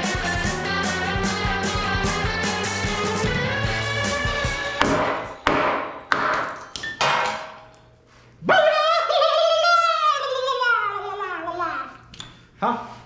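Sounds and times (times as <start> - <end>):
music: 0.0 - 5.5.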